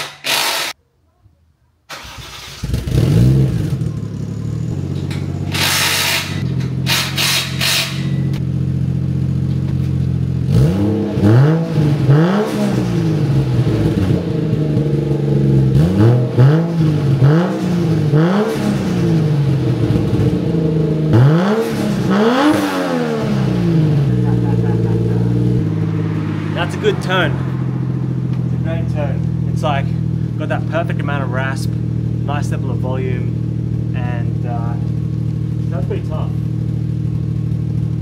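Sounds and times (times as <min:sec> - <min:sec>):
short noisy bursts: 0:00.0 - 0:00.8, 0:05.5 - 0:08.2
engine revving: 0:01.9 - 0:38.0
car engine idling: 0:02.8 - 0:11.2, 0:11.9 - 0:21.2, 0:23.4 - 0:38.0.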